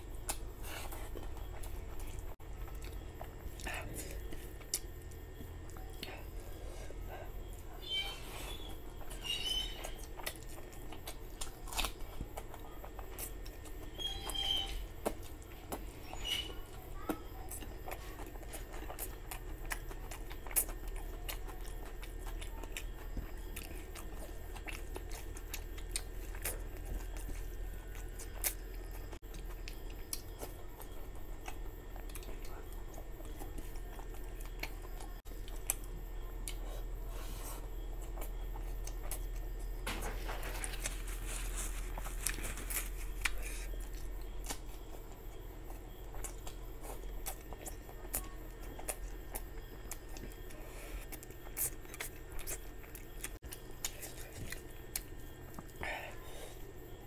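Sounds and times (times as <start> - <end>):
close chewing: 0.0 - 57.0.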